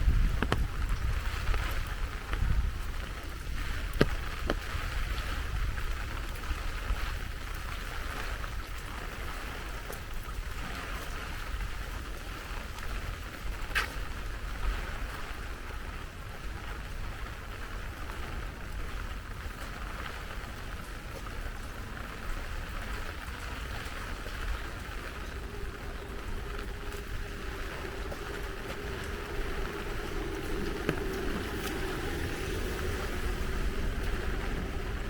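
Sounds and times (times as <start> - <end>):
heavy rain falling: 0.0 - 35.0
vehicle humming: 21.6 - 35.0.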